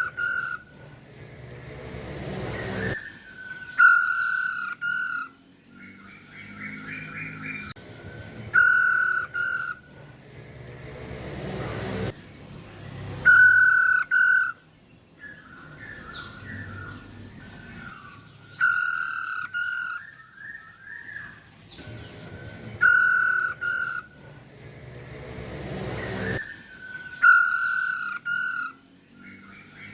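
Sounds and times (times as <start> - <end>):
bird harsh double calls: 0.0 - 0.8, 3.7 - 5.4, 8.6 - 9.8, 13.2 - 14.6, 18.6 - 20.2, 22.8 - 24.1, 27.2 - 28.8
bird twittering chirps: 0.0 - 0.8, 2.5 - 10.0, 13.2 - 24.2, 25.9 - 29.9.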